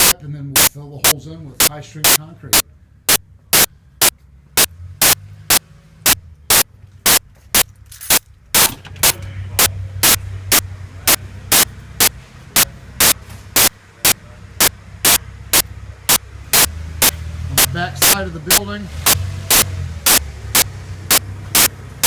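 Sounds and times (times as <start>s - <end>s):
steady low hum: 0.0s - 22.0s
sharp loud clicks: 1.6s - 2.2s, 3.1s - 21.8s.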